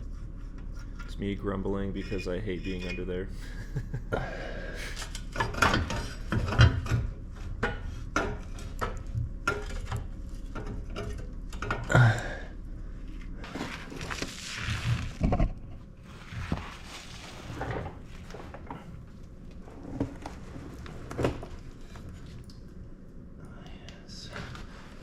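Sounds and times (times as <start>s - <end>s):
metal scraping: 0.0s - 3.4s.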